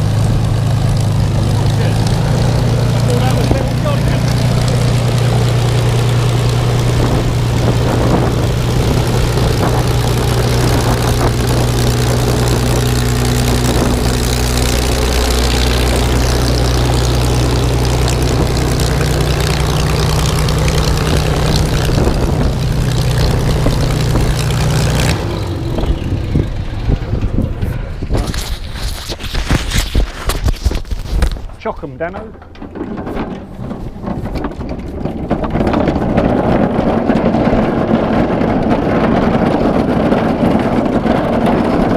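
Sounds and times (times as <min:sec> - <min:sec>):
propeller aircraft engine running: 0:00.0 - 0:41.9.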